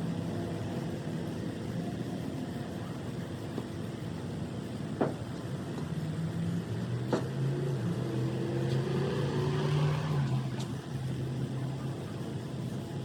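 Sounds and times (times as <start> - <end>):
vehicle engine humming: 4.2 - 13.0.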